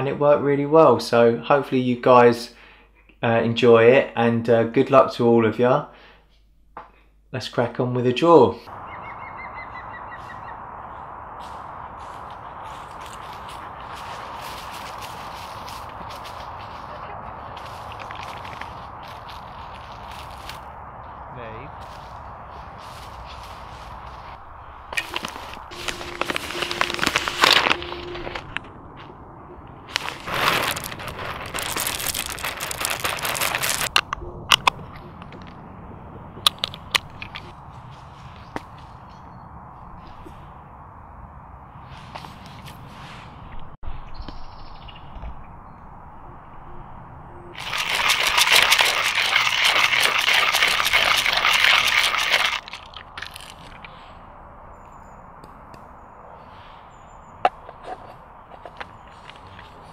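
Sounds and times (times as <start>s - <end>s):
hand coffee grinder crunching beans: 25.0s - 28.4s, 29.9s - 34.0s, 47.6s - 53.8s
coffee grinder grinding beans: 47.6s - 52.7s.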